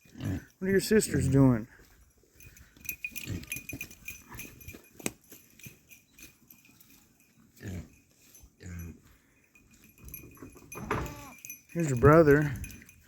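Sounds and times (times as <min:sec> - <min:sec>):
farm animals grunting: 0:00.0 - 0:01.5, 0:03.1 - 0:04.5, 0:07.5 - 0:09.4.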